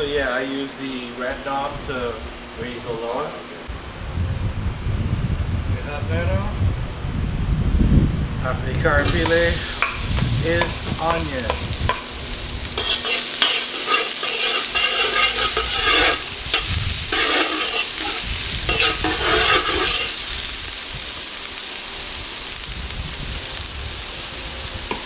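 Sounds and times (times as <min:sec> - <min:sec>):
stirring strokes scraping pot: 0:09.0 - 0:20.5
onion sizzling in hot oil: 0:09.0 - 0:25.0.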